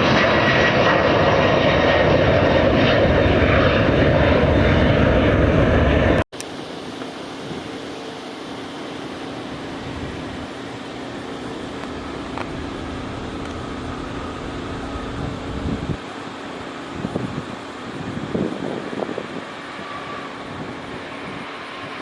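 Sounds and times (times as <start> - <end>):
distant engines droning: 0.0 - 22.0.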